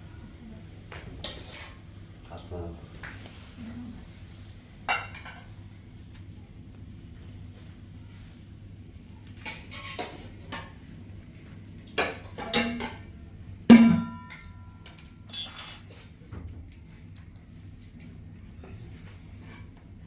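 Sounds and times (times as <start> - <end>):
clinks of hard objects: 13.7 - 16.0.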